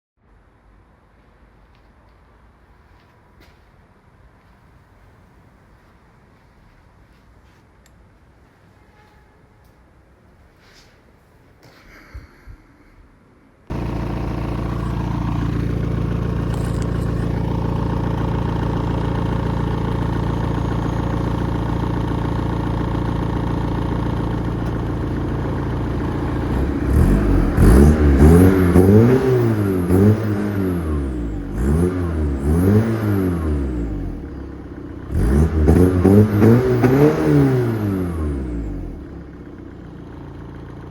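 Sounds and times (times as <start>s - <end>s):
diesel car engine idling and revving: 13.7s - 40.9s.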